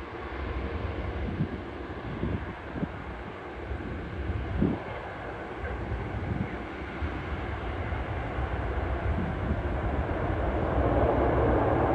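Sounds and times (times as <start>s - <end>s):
turboprop aircraft engines droning: 0.0s - 11.9s.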